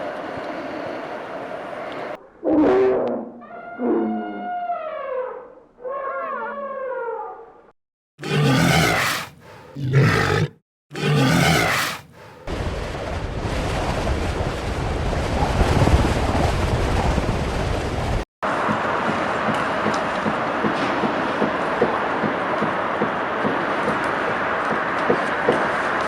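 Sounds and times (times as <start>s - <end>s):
large animal calling loudly: 8.2s - 12.0s.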